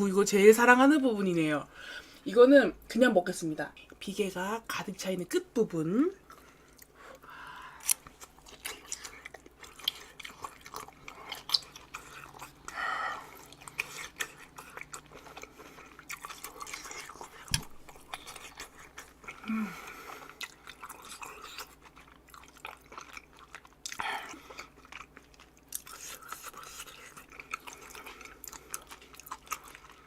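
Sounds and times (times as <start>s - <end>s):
close-up chewing: 6.2s - 30.0s
wet mouth sounds: 8.6s - 15.0s.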